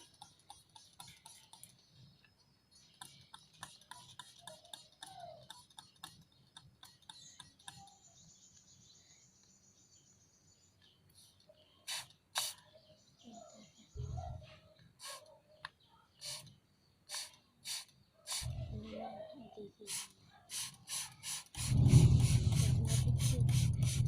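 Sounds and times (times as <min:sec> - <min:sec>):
small clicks and scratches: 0:00.0 - 0:08.7
bird chirps: 0:00.0 - 0:21.5.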